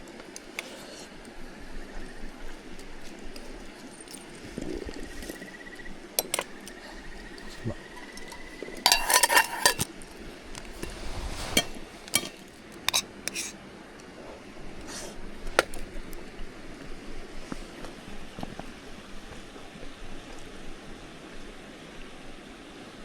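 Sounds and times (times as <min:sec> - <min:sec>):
cups and dishes clinking: 0:06.2 - 0:10.0, 0:10.8 - 0:13.6.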